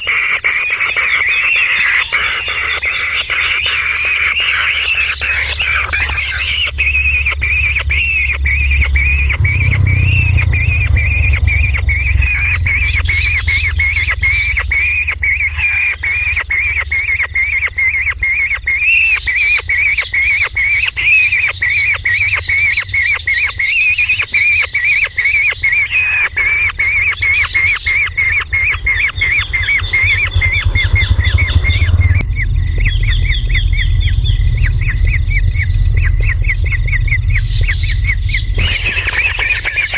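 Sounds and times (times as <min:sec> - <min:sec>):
bird chirping rapidly: 0:00.0 - 0:39.9
high insect-like whine: 0:00.0 - 0:39.9
low rumble: 0:04.5 - 0:18.8, 0:26.3 - 0:39.9.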